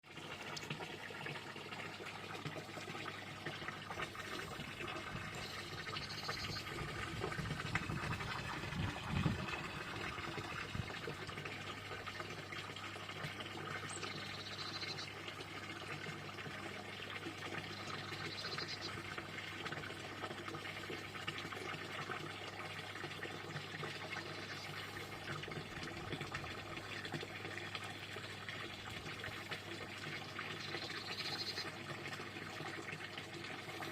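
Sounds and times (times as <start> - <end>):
water running: 0.2 - 33.9
frogs calling: 5.3 - 6.9, 30.6 - 31.7.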